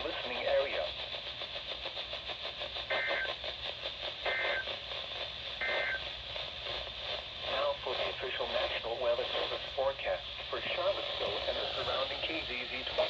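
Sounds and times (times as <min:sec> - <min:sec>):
radio static hiss: 0:00.0 - 0:13.0
two-tone electronic beeps: 0:04.3 - 0:04.7, 0:05.6 - 0:06.0.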